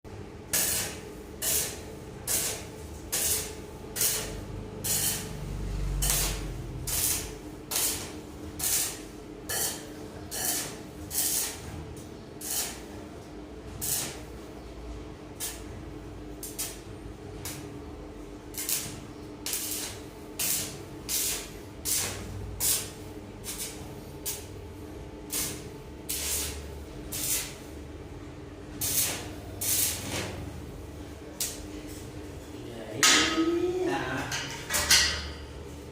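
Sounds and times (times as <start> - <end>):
steady electrical hum: 0.1 - 35.9
welding hissing crackle: 0.5 - 11.7, 12.4 - 12.9, 13.8 - 14.4, 15.4 - 15.7, 16.4 - 17.7, 18.4 - 24.6, 25.2 - 27.7, 28.7 - 31.8.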